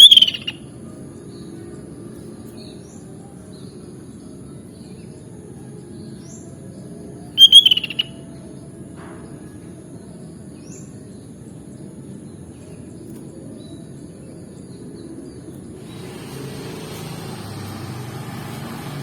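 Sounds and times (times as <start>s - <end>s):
bird calling rapid notes: 0.0s - 0.6s, 7.4s - 8.2s
faint high bird chirp: 0.0s - 9.7s.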